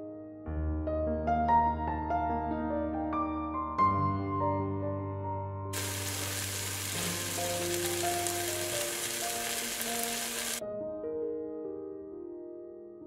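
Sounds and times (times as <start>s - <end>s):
soft piano music: 0.0s - 13.0s
food sizzling in hot oil: 5.8s - 10.6s.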